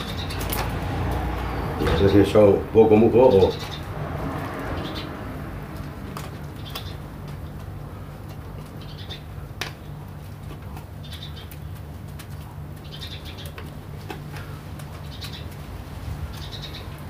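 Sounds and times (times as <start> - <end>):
dry moss clicks and rustles: 5.6 - 17.0
small bird chirping: 6.5 - 7.1, 8.7 - 10.0, 11.0 - 11.8, 12.7 - 13.7, 14.4 - 15.6, 16.2 - 17.0.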